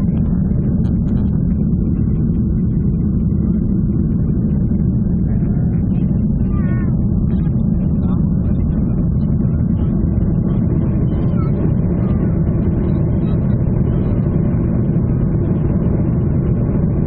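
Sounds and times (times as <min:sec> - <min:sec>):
airliner engine rumble in cabin: 0:00.0 - 0:17.0
faint voices: 0:05.1 - 0:12.8.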